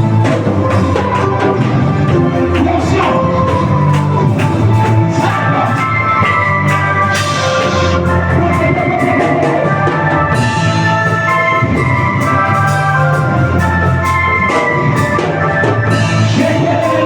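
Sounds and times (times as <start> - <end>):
band music: 0.0 - 17.0
person singing: 7.1 - 9.0.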